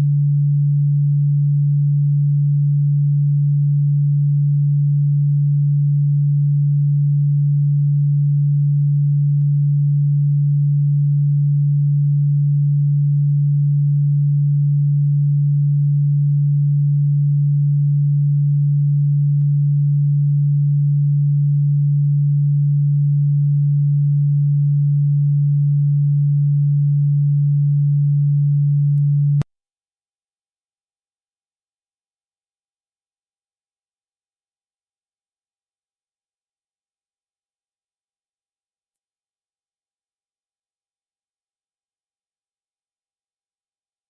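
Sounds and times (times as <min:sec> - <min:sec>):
low electronic tone: 0:00.0 - 0:29.5.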